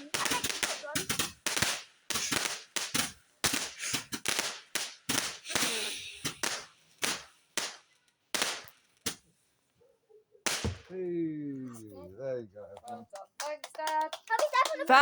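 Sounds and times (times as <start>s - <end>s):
fireworks bangs: 0.0s - 9.2s, 10.4s - 11.8s
fireworks crackle: 0.0s - 9.4s, 10.5s - 11.0s, 12.9s - 15.0s.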